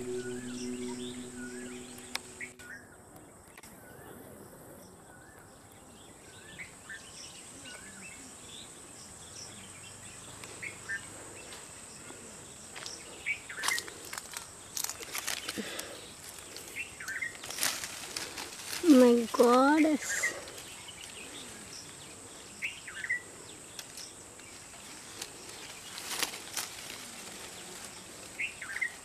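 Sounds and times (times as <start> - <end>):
leaves rustling and crackling: 0.0 - 2.5, 13.5 - 22.0, 23.7 - 29.0.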